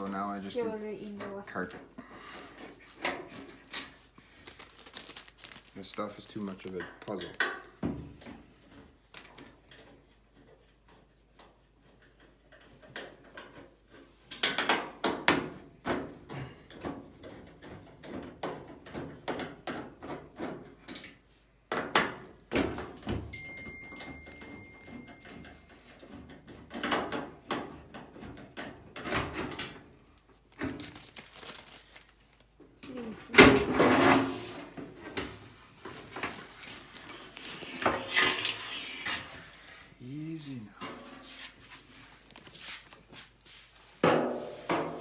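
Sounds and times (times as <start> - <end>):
metal clatter: 35.8 - 39.3.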